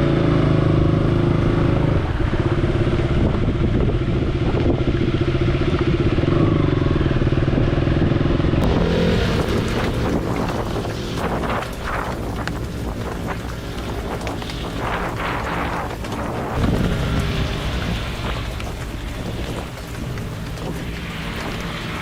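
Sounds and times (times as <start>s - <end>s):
motorcycle engine running: 0.0s - 22.0s
hissy wind-like sound: 8.6s - 22.0s.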